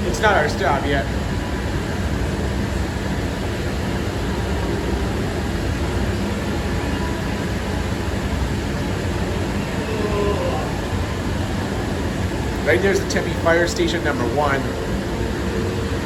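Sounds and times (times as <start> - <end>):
light rail train rumble: 0.0 - 16.0.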